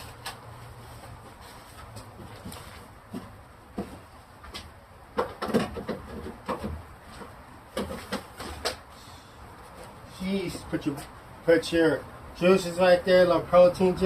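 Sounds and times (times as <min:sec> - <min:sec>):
containers clattering on fridge shelves: 0:05.1 - 0:08.8.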